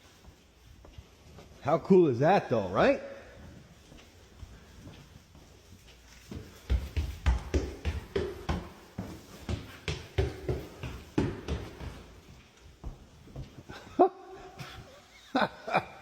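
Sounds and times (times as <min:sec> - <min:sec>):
footsteps thudding on floor: 0:06.2 - 0:13.8.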